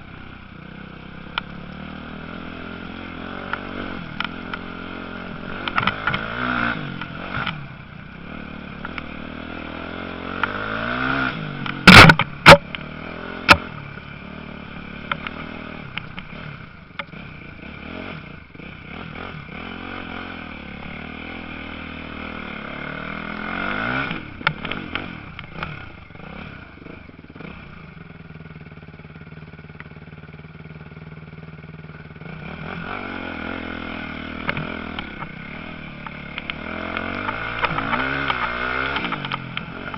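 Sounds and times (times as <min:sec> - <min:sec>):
sharp loud knocks: 0:11.8 - 0:12.6
motocross bikes revving and passing: 0:32.2 - 0:39.9.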